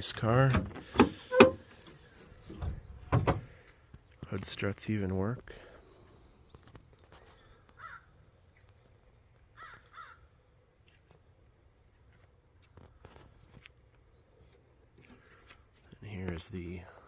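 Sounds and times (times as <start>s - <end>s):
faint bird calls: 7.2s - 8.2s, 9.6s - 10.3s.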